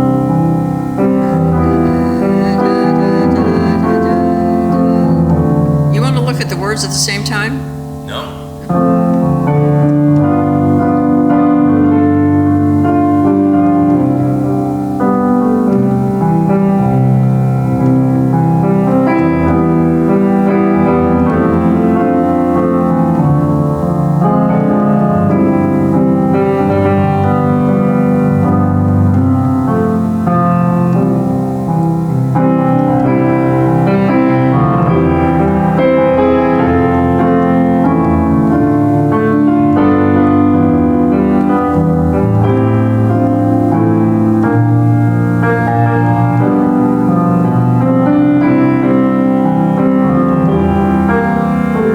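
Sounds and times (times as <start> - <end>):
slow hymn on solo piano: 0.0 - 51.9.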